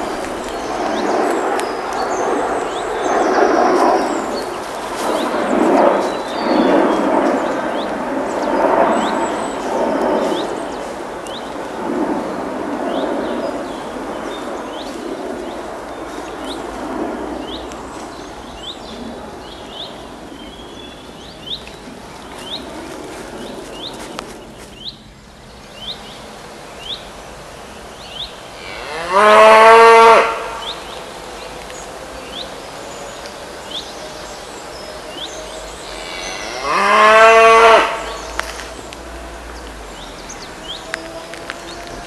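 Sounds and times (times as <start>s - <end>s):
rushing background noise: 0.0s - 28.6s, 29.2s - 42.0s.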